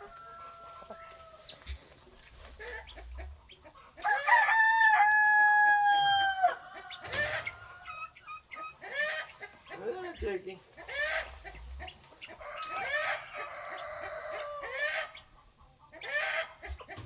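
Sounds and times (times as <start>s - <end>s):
chickens clucking: 0.0s - 17.0s
rooster crowing: 4.0s - 8.0s, 12.4s - 15.0s.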